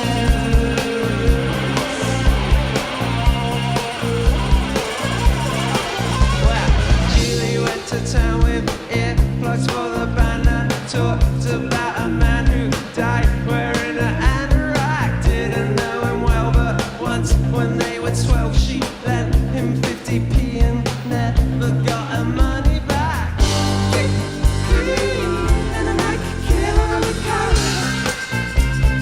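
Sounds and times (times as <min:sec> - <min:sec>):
drum beat: 0:00.0 - 0:09.4, 0:22.6 - 0:29.0
person singing: 0:00.0 - 0:28.4
bass and guitar: 0:00.0 - 0:29.0.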